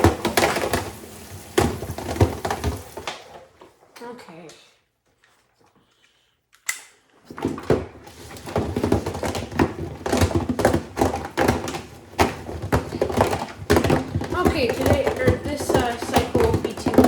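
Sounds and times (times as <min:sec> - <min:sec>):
plastic clattering in washer drum: 0:00.0 - 0:03.8, 0:07.3 - 0:17.0.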